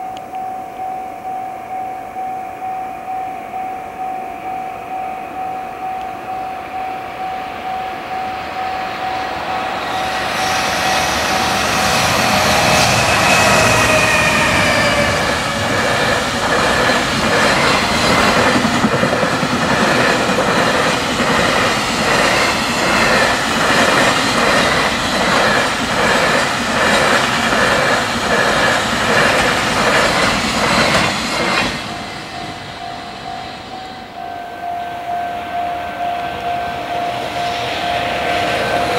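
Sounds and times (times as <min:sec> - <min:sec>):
level crossing bell ringing: 0:00.0 - 0:10.2, 0:32.4 - 0:38.9
locomotive passing: 0:04.9 - 0:38.9.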